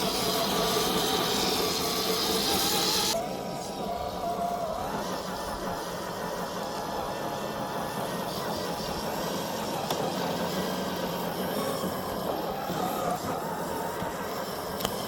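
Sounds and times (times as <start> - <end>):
toy truck electric motor whirring: 0.0 - 15.0.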